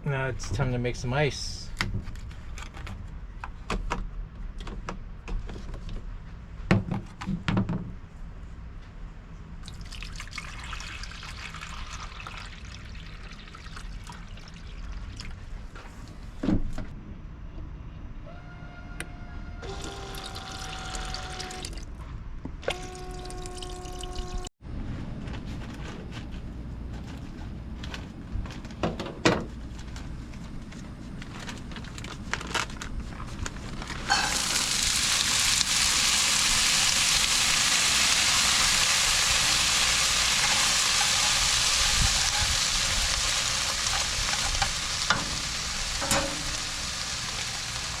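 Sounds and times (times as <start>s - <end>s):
water pouring into containers: 9.6s - 15.7s, 19.7s - 21.9s, 22.7s - 24.5s, 34.1s - 44.0s.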